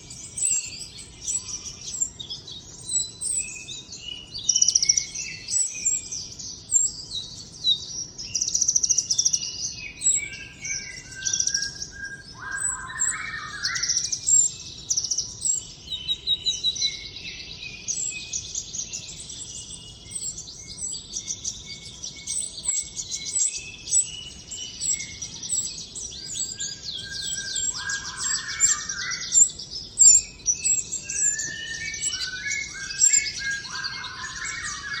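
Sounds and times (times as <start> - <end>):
bird high-pitched trills and chirps: 0.0 - 35.0.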